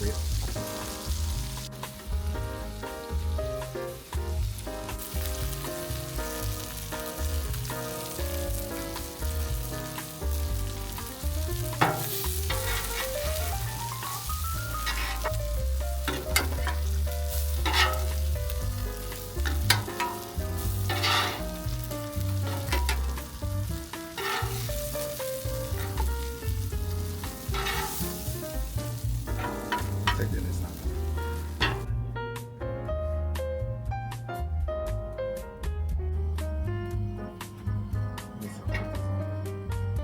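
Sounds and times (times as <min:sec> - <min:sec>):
food sizzling on a griddle: 0:00.0 - 0:32.0
background music with bass: 0:00.0 - 0:40.0
spatula scraping a griddle: 0:04.9 - 0:31.9.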